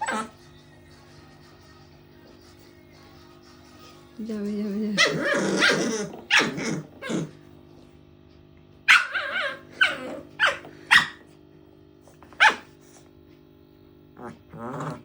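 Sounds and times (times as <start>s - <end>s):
puppy barking: 0.0s - 0.4s, 5.0s - 7.4s, 8.8s - 11.3s, 12.3s - 12.8s
faint steady hum: 0.0s - 15.0s.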